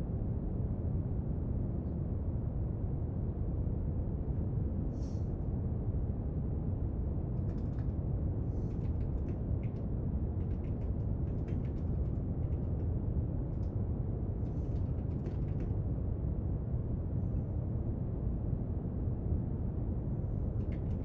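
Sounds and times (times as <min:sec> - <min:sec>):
soft clicks and scratches of desk work: 0:07.4 - 0:12.9, 0:14.4 - 0:15.8, 0:20.4 - 0:21.0.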